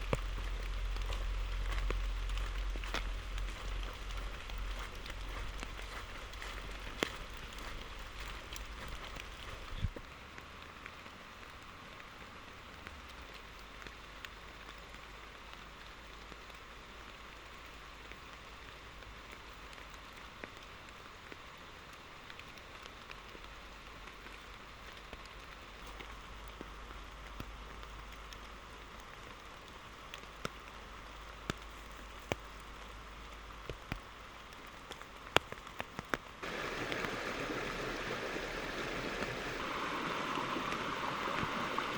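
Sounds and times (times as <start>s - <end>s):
raindrops striking a surface: 0.0s - 41.9s
steady rain hiss: 0.0s - 41.9s.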